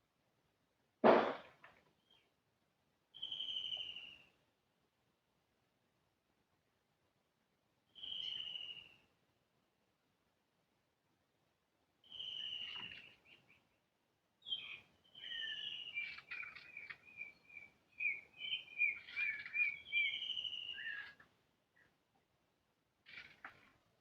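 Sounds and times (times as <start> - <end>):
bird whistling and chattering: 12.1 - 13.2, 14.4 - 21.2.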